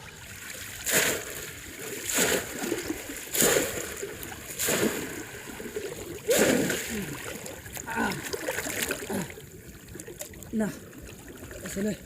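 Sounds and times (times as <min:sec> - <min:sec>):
shallow water splashing: 0:00.0 - 0:12.0.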